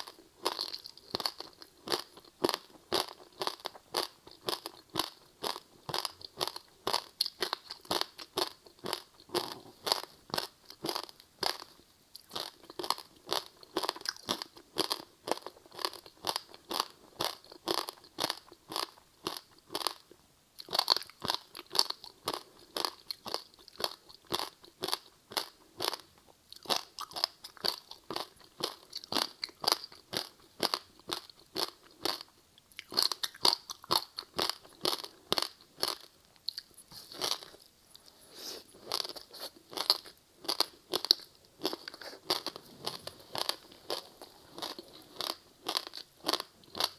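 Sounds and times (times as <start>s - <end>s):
crunching and chewing crispy snack: 0.0s - 46.9s.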